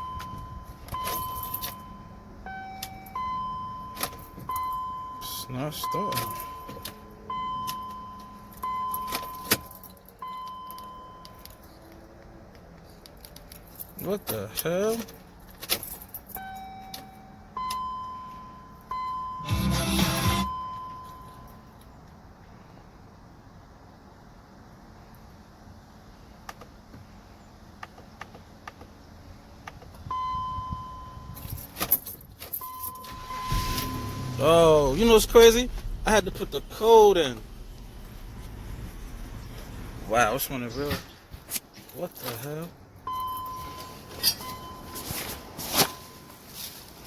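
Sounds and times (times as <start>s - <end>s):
car warning chime: 0.0s - 11.5s, 16.4s - 21.7s, 30.1s - 31.8s, 32.5s - 40.7s, 43.0s - 46.5s
steady electronic beep: 19.0s - 21.3s, 32.7s - 39.4s.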